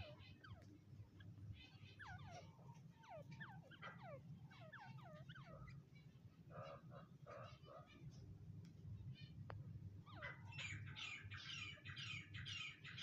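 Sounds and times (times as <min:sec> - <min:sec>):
rough low bird calls: 0:00.0 - 0:08.1
low steady hum: 0:00.0 - 0:13.0.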